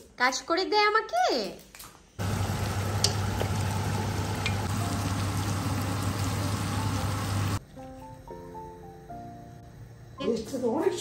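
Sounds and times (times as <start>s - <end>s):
food sizzling in a pan: 2.2s - 7.6s.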